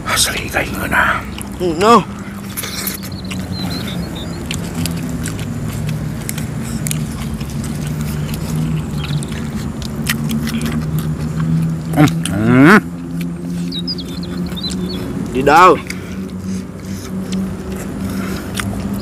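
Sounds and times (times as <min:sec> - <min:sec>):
steady low hum: 0:00.0 - 0:19.0
person chewing crunchy food: 0:00.3 - 0:19.0.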